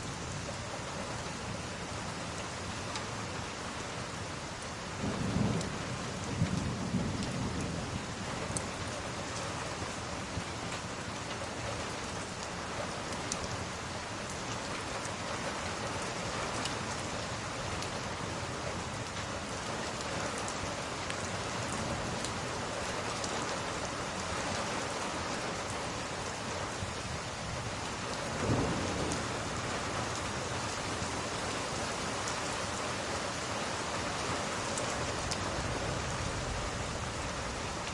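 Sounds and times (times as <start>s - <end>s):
steady rain falling: 0.0s - 37.9s
low rumble of thunder: 4.9s - 10.5s, 26.5s - 32.0s, 35.0s - 37.9s.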